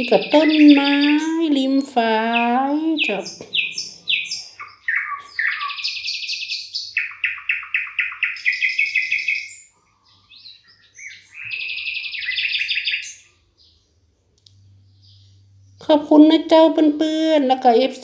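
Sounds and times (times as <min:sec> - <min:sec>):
birdsong: 0:00.0 - 0:16.6.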